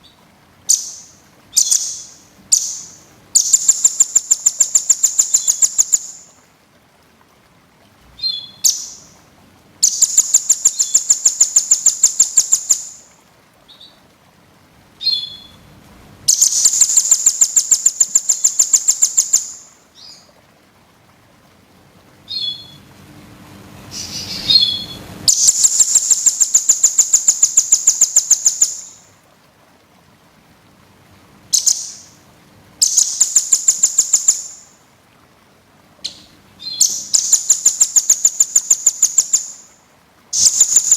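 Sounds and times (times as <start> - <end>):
songbird singing fast trills: 0.0 - 6.3, 9.8 - 13.1, 15.0 - 15.6, 16.3 - 20.2, 22.3 - 22.8, 23.9 - 29.0, 31.5 - 32.2, 32.8 - 34.7, 36.1 - 39.8, 40.4 - 40.9
single bird chirps: 22.3 - 22.8, 23.9 - 26.5.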